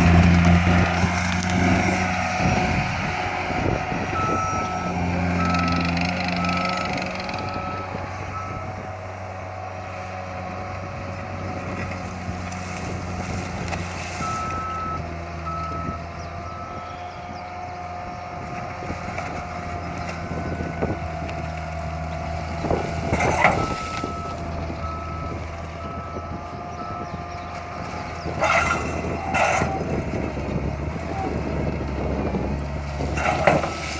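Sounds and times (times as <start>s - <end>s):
diesel engine running: 0.0s - 33.9s
back-up alarm beeping: 3.4s - 8.9s, 14.2s - 17.4s, 22.8s - 29.8s.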